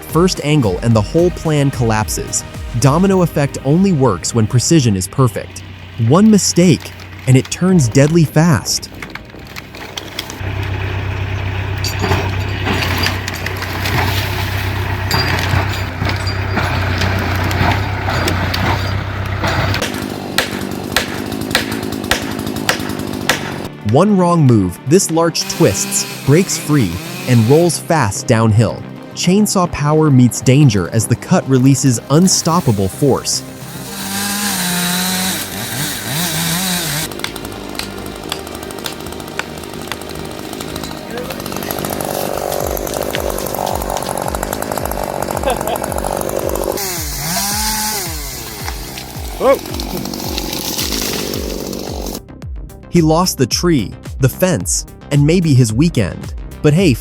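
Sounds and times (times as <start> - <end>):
chainsaw engine revving: 0.1 - 23.8, 25.0 - 28.0, 31.3 - 52.2
timber cracking and snapping: 8.8 - 10.8, 15.4 - 23.7, 34.0 - 52.2.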